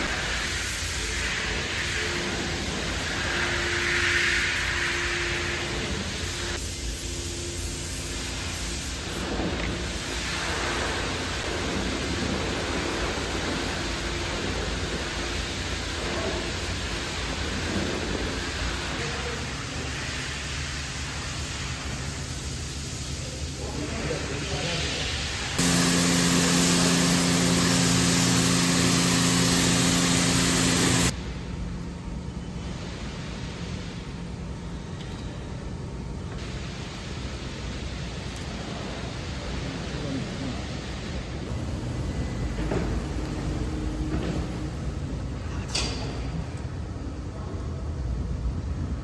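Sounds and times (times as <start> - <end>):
high-pressure water spray hissing: 0.0 - 23.4, 24.3 - 31.2, 41.5 - 45.3
pressure washer spraying water: 25.6 - 31.2, 41.5 - 45.5.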